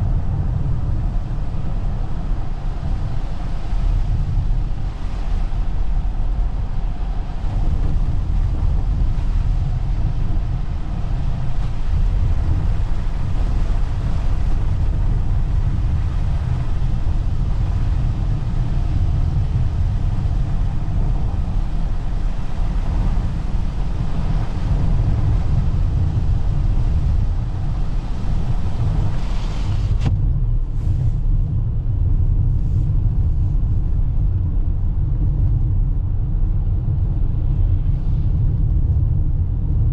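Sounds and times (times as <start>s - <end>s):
road and tyre rumble: 0.0s - 39.9s
hiss: 26.2s - 30.1s.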